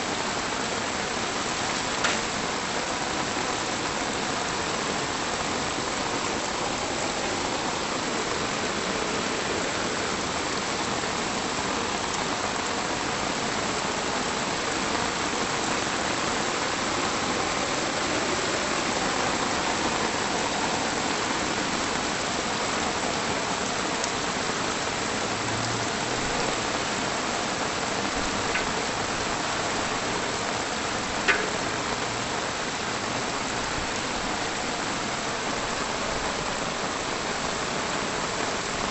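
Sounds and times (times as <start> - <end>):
steady rain falling: 0.0 - 38.9
sharp tap: 31.3 - 31.6.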